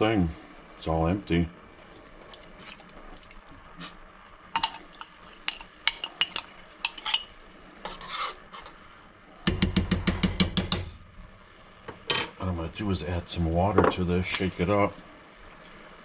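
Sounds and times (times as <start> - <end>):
spoon scraping and tapping in jar: 4.6 - 7.3.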